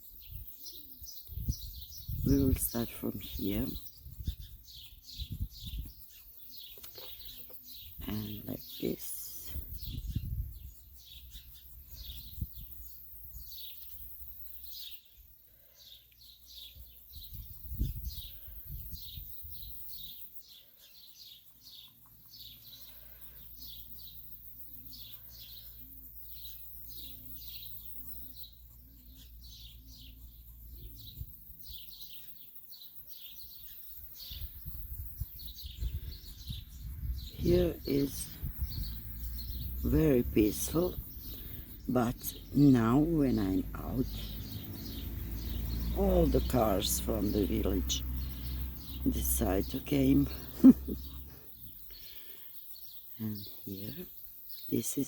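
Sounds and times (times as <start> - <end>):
small birds chirping: 0.0 - 55.0
wind buffeting microphone: 1.1 - 2.7, 3.3 - 6.1, 9.5 - 11.2, 11.9 - 13.5, 17.1 - 19.8, 34.1 - 41.9.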